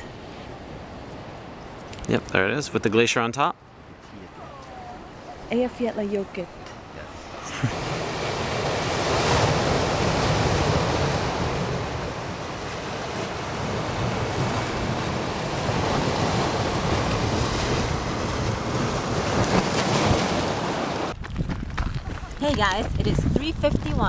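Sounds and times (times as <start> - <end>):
ocean surf on pebble beach: 4.0 - 21.2
wind buffeting microphone: 7.7 - 24.0.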